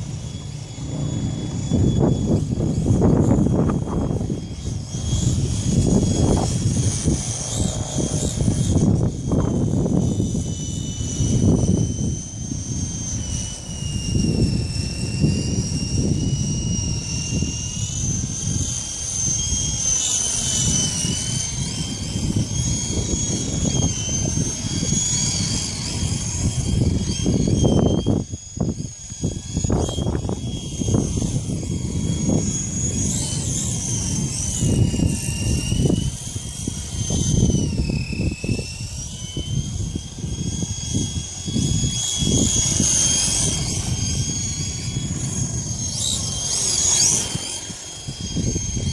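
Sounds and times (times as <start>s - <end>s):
electric motor and rotor whining: 0.0s - 48.9s
wind buffeting microphone: 0.0s - 48.9s.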